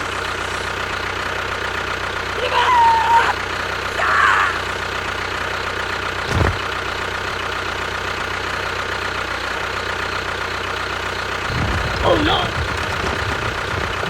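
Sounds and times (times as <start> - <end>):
vehicle engine idling: 0.0 - 14.0
short low thud: 6.2 - 6.6
deep rumble: 11.4 - 14.0.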